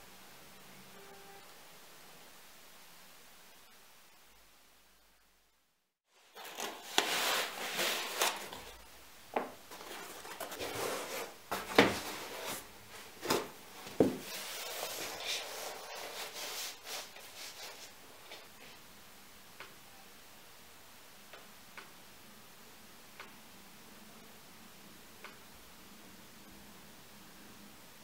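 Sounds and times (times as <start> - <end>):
rustling and rubbing: 6.2 - 8.8, 9.4 - 18.8.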